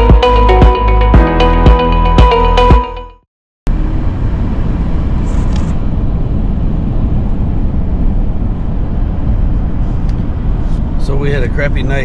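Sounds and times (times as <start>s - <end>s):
electronic background music: 0.0s - 3.2s
vehicle driving rumble: 3.7s - 12.0s.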